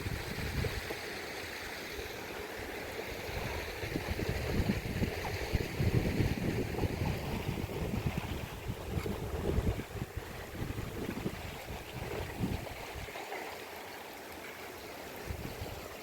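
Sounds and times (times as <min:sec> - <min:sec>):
wind buffeting microphone: 0:00.0 - 0:01.0, 0:03.1 - 0:13.2, 0:15.2 - 0:16.0
rushing water in rain: 0:00.0 - 0:16.0.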